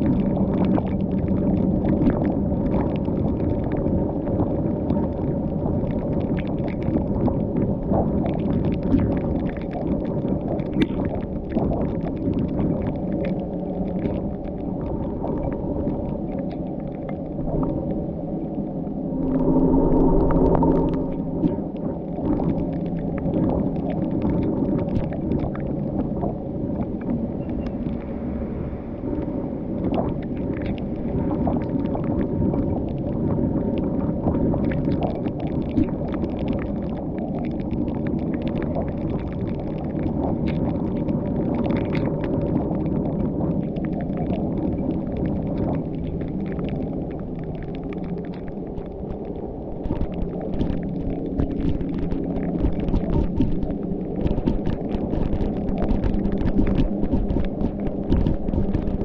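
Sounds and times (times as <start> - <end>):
low hum: 12.2 - 43.8, 44.6 - 59.0
car engine drone: 18.9 - 22.1.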